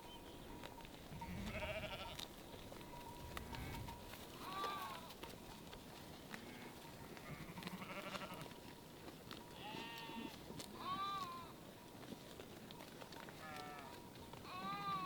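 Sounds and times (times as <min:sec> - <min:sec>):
livestock bleating: 0:01.1 - 0:02.3, 0:03.3 - 0:05.2, 0:06.3 - 0:08.5, 0:09.6 - 0:11.6, 0:13.3 - 0:15.0.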